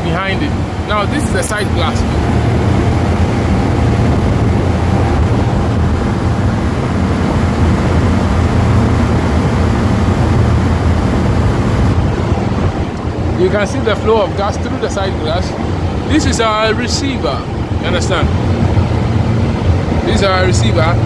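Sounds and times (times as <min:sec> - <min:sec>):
condensing unit humming: 0:00.0 - 0:21.0.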